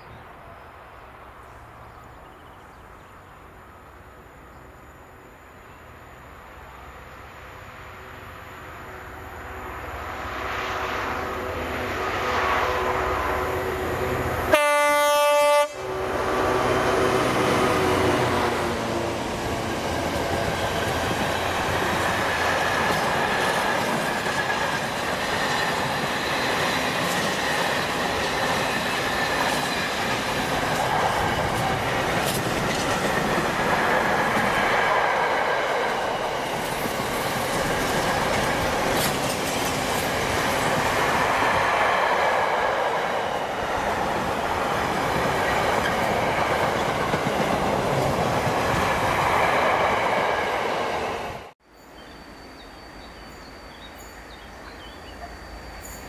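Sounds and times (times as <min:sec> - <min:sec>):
train horn blast: 0:10.6 - 0:18.6
train wheels rumbling on rails: 0:15.6 - 0:51.6
clickety-clack over rail joints: 0:19.5 - 0:43.1, 0:43.8 - 0:51.1.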